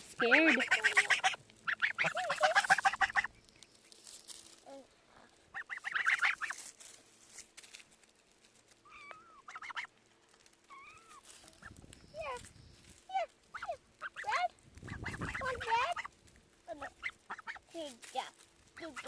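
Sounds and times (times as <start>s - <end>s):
geese honking: 0.0s - 3.8s, 5.5s - 6.7s, 8.9s - 10.0s, 13.4s - 17.7s, 18.8s - 19.0s.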